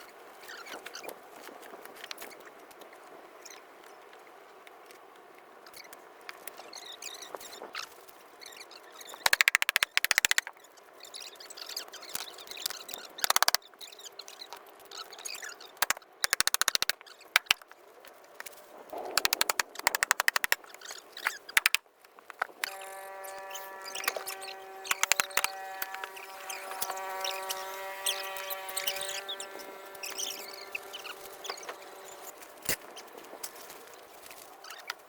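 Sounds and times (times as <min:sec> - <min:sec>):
rapid machine-like clicking: 0:09.3 - 0:10.5, 0:13.2 - 0:13.6, 0:15.8 - 0:17.6, 0:19.2 - 0:20.6, 0:21.6 - 0:21.8, 0:22.6 - 0:32.4.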